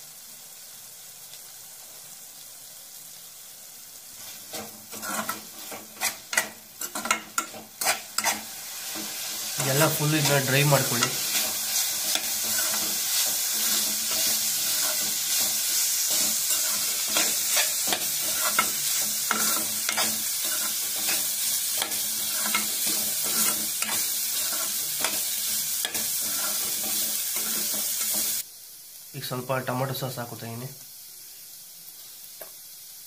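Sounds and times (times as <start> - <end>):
chicken sizzling in hot oil: 0.0 - 33.0
spatula scraping a pan: 4.2 - 28.4.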